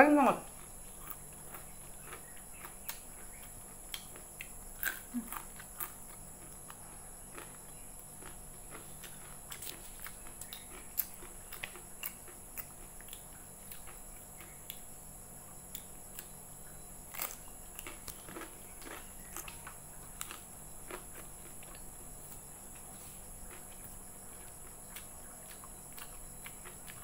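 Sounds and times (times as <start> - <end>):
faint background hum: 0.0 - 27.0
wet chewing and mouth smacks: 0.6 - 14.9, 17.1 - 27.0.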